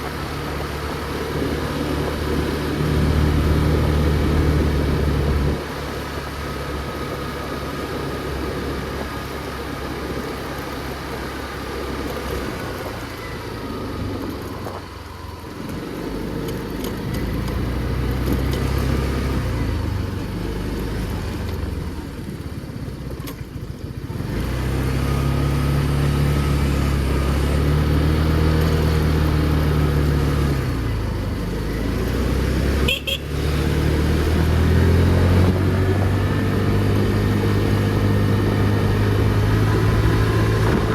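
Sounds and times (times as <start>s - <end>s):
motor scooter engine running: 0.0s - 40.9s
street traffic: 0.0s - 40.9s.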